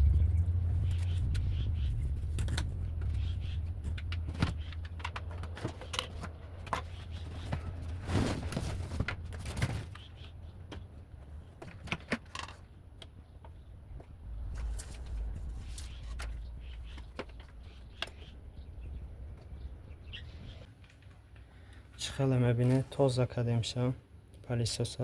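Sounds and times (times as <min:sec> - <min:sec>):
low rumble: 0:00.0 - 0:05.4, 0:13.3 - 0:20.7.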